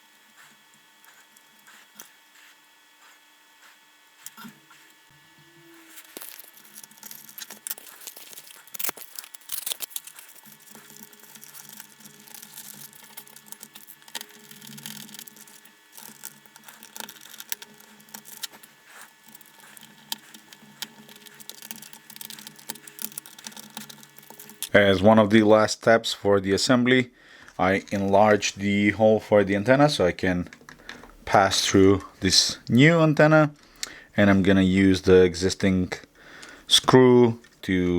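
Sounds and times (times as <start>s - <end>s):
hands handling small parts: 5.8s - 24.8s.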